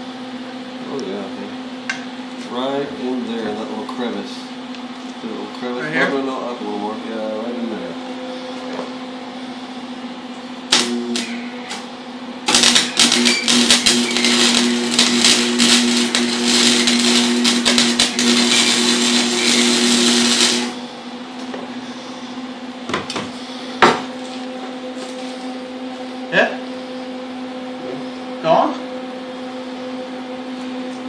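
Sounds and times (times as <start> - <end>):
welding machine hum: 10.4 - 22.1
welding arc crackling: 10.7 - 11.8, 12.4 - 20.9.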